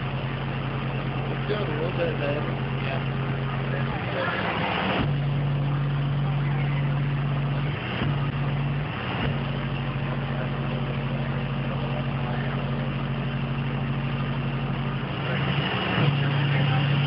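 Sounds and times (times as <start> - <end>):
subwoofer bass tone: 0.0 - 17.0.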